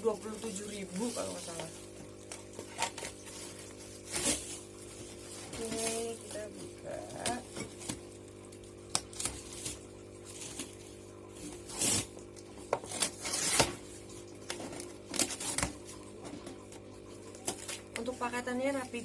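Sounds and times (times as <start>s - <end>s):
cardboard tearing: 2.4s - 8.0s, 8.9s - 13.9s, 14.5s - 16.0s, 17.3s - 18.1s.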